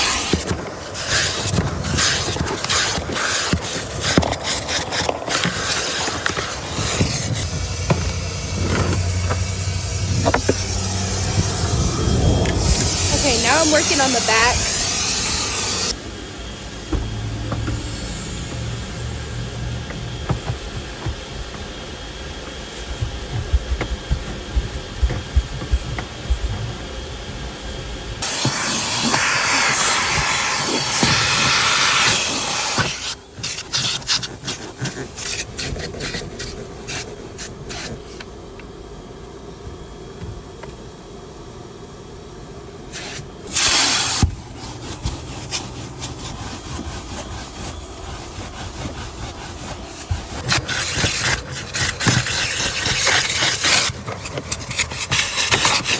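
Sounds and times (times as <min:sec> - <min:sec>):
scrubbing and wiping: 0:00.0 - 0:15.9, 0:18.0 - 0:28.6, 0:42.9 - 0:55.9
loud hiss: 0:05.6 - 0:16.1, 0:28.2 - 0:33.2, 0:42.9 - 0:44.5.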